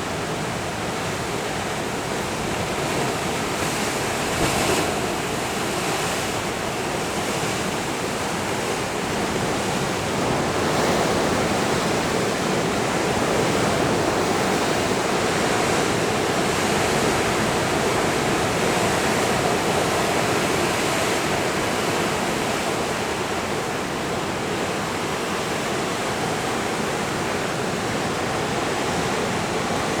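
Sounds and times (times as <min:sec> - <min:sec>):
ocean waves breaking: 0:00.0 - 0:30.0.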